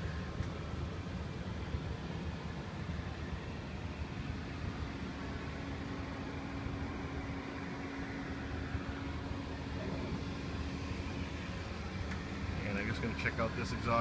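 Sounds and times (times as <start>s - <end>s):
steady hum tone: 0.0s - 14.0s
machinery rumbling: 3.4s - 14.0s.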